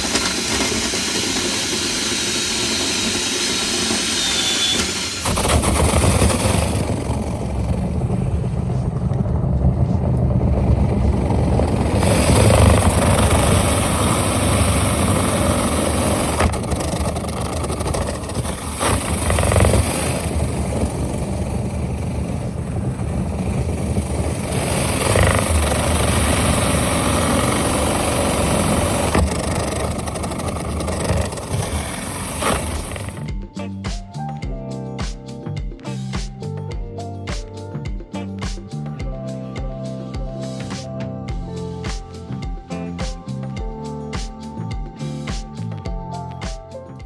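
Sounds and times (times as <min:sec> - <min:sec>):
power drill spinning brush in duct: 0:00.0 - 0:33.3.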